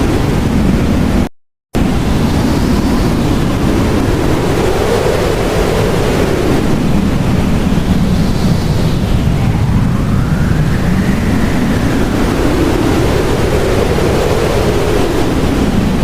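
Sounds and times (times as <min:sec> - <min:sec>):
strong blizzard wind: 0:00.0 - 0:16.0.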